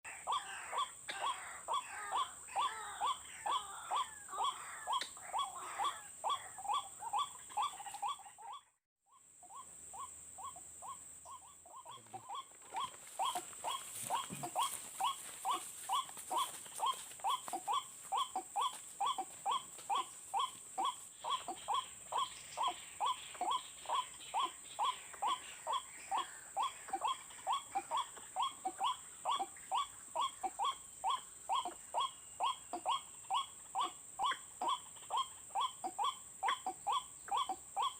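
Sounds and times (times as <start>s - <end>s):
waterhen calling repeated notes: 0.1s - 37.9s.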